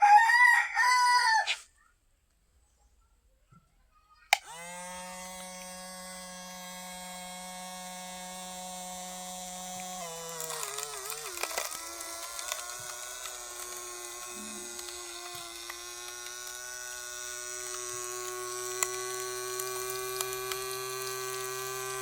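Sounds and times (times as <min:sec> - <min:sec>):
small electric pump motor whining: 0:04.3 - 0:22.0
crackles: 0:09.8 - 0:22.0.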